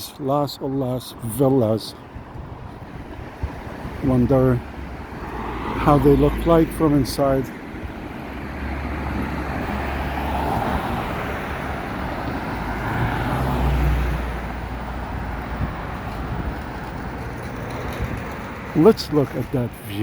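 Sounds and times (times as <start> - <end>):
vehicle passing: 3.1 - 20.0.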